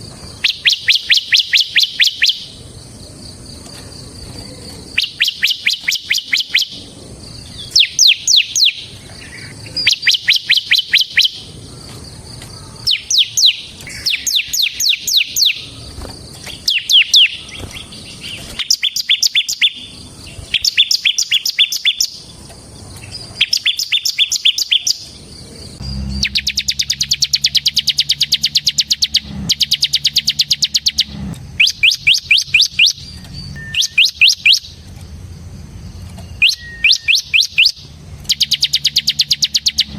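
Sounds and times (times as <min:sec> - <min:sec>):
bird trill: 0:00.0 - 0:34.9, 0:35.8 - 0:39.9
bird singing: 0:00.0 - 0:39.9
low hum: 0:25.2 - 0:34.0.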